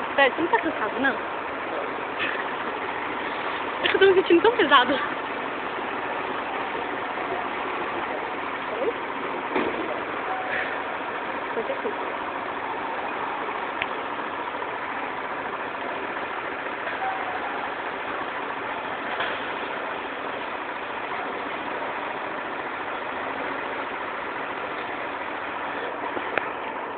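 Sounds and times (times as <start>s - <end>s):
construction machinery engine din: 0.0s - 26.9s.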